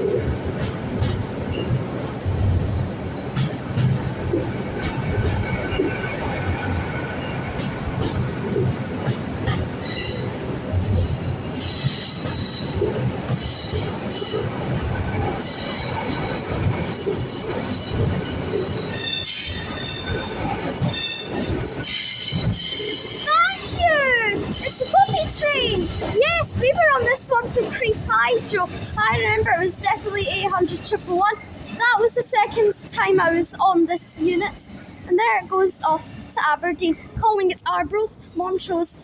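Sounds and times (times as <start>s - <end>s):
train diesel engine rumble: 0.0s - 39.0s
train wheels squealing: 9.8s - 10.4s, 11.1s - 12.8s, 15.4s - 26.2s.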